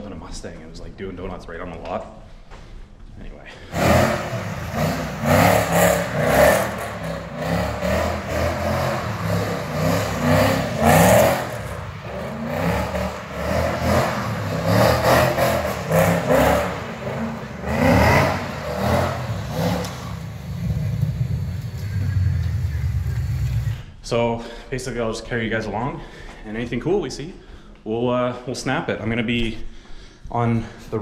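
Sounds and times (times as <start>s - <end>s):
car engine revving: 3.7s - 23.8s.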